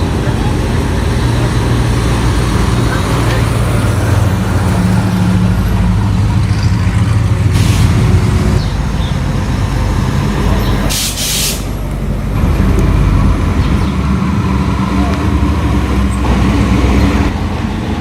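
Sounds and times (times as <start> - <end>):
vehicle engine rumbling: 0.0 - 18.0
air hiss bursts: 10.9 - 11.8.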